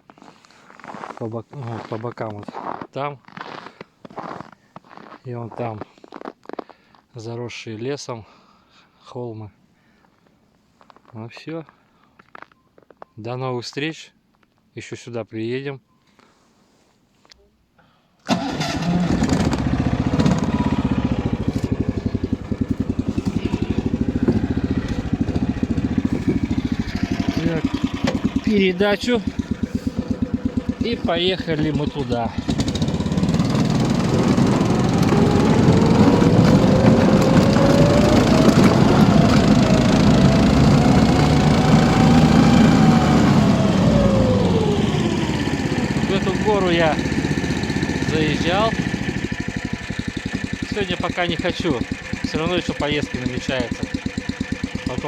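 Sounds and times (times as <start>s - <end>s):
engine starting and running: 18.3s - 55.0s.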